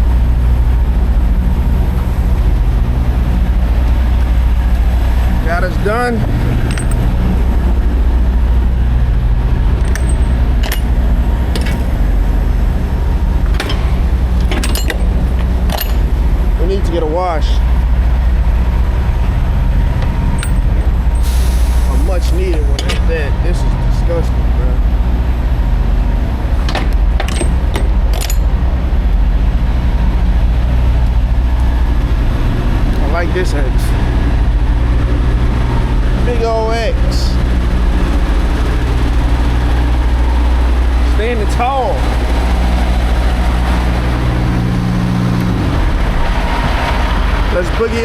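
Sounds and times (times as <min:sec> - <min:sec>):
diesel truck engine running: 0:00.0 - 0:48.0
metallic clinks: 0:06.5 - 0:07.2, 0:09.8 - 0:12.0, 0:13.5 - 0:16.2, 0:20.3 - 0:21.3, 0:26.7 - 0:28.6
sharp rattles and clicks: 0:06.5 - 0:07.3, 0:09.7 - 0:12.4, 0:13.4 - 0:16.6, 0:20.0 - 0:21.2, 0:26.4 - 0:28.7.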